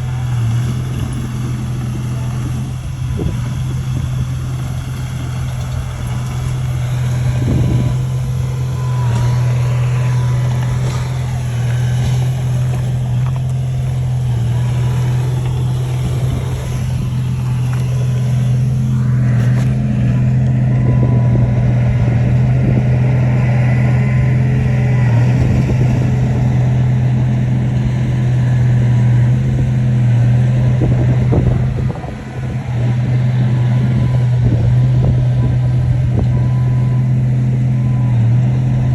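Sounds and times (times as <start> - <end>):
bulldozer diesel engine droning: 0.0 - 38.9.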